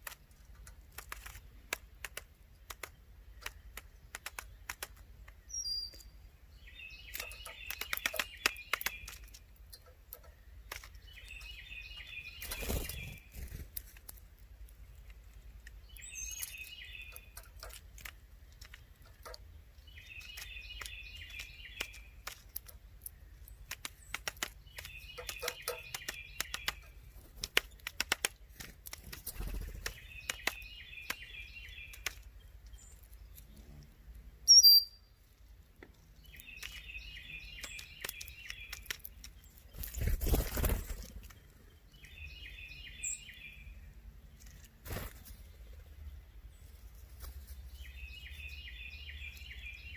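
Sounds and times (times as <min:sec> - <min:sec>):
woodpecker tapping: 0:07.0 - 0:13.1, 0:15.0 - 0:32.3, 0:36.3 - 0:39.4.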